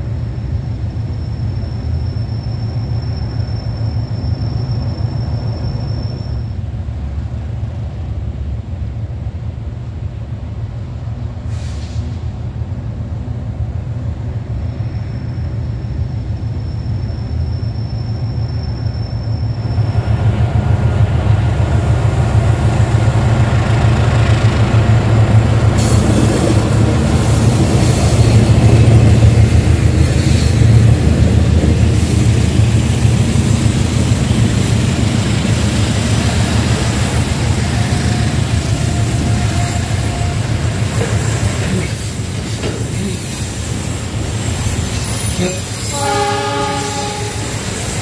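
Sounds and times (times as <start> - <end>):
train engine and wheels rumbling: 0.0 - 48.0
wheel and rail hiss: 11.1 - 13.6, 21.6 - 48.0.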